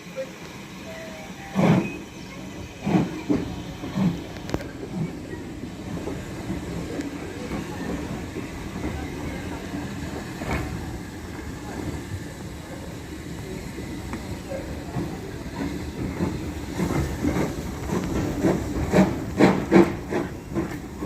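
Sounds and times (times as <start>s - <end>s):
train rumbling on rails: 0.0s - 21.0s
train knocks: 1.3s - 11.0s, 14.9s - 21.0s.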